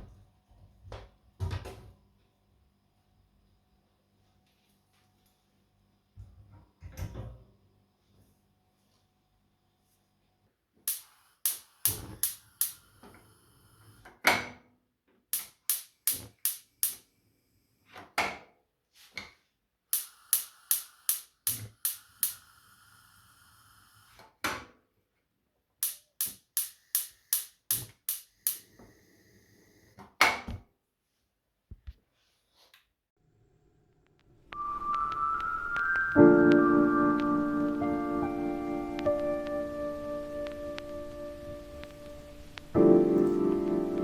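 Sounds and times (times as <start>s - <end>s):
sharp clicks and knocks: 25.8s - 28.7s.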